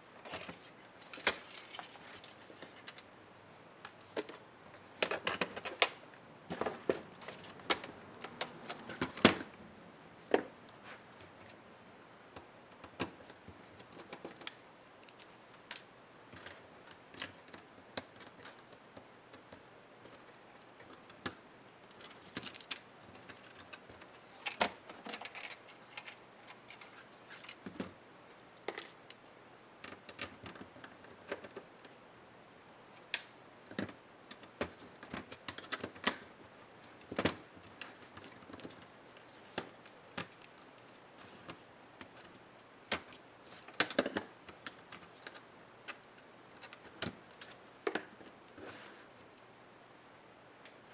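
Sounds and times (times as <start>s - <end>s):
laptop parts and tools clicking: 0.3s - 3.1s, 5.0s - 9.5s, 20.9s - 27.9s, 33.1s - 48.3s.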